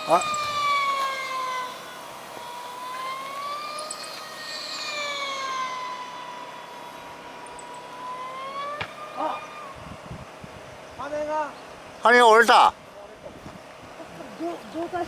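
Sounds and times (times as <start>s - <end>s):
model aircraft engine whining: 0.0s - 10.9s.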